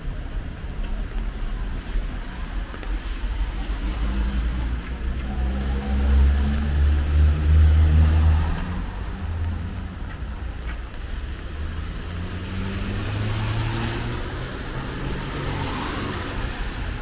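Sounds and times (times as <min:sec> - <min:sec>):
car driving past: 0:11.5 - 0:17.0.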